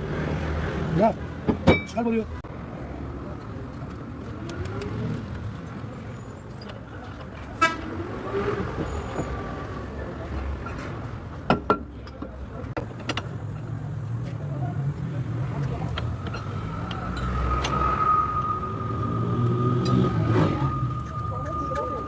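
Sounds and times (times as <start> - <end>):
ringing metallic clank: 16.0 - 22.0.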